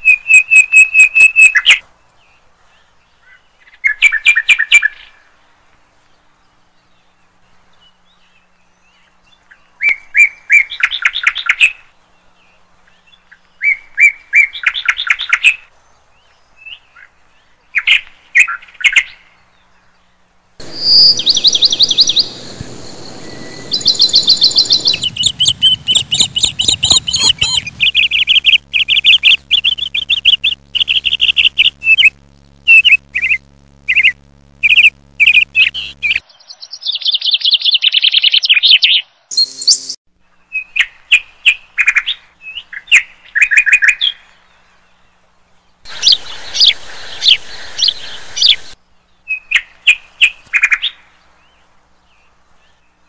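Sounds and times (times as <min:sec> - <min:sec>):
birds chirping and whistling: 0:20.6 - 0:40.0, 0:45.9 - 0:49.6.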